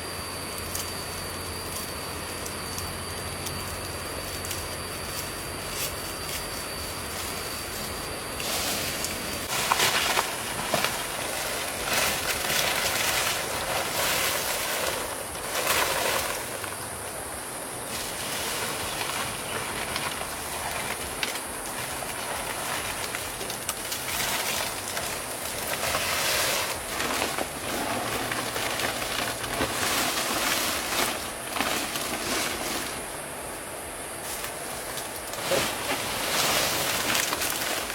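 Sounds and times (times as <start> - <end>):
high-pitched hiss: 0.0 - 37.9.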